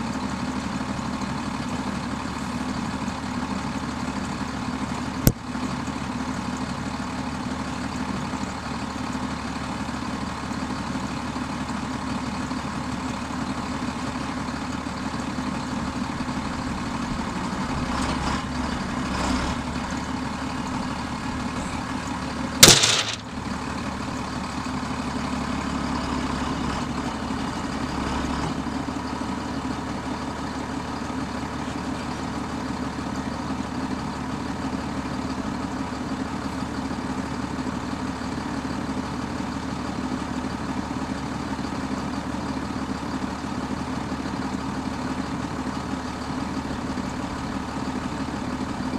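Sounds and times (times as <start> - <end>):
diesel tractor engine idling: 0.0 - 22.6, 23.2 - 48.9
sharp loud clack: 22.6 - 23.3.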